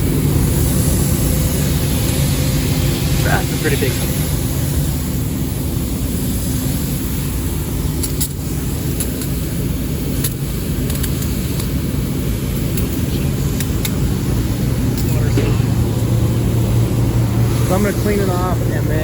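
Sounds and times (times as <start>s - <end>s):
air conditioner fan hum: 0.0s - 19.0s.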